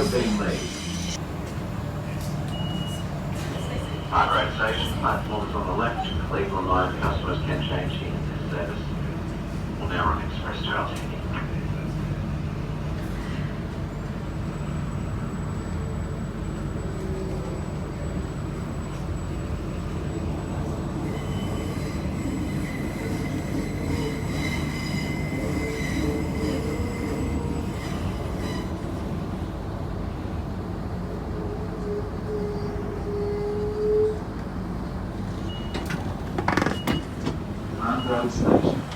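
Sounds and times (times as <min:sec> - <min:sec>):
electric train rumbling: 0:00.0 - 0:38.9
high-pitched wheel squeal: 0:21.0 - 0:28.9.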